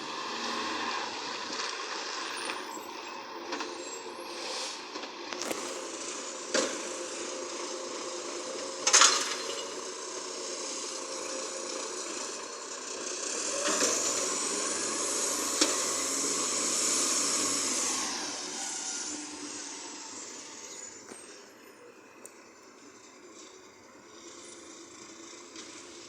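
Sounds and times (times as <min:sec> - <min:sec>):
garbage truck running: 0:00.0 - 0:26.0
high rising whine: 0:12.7 - 0:25.2.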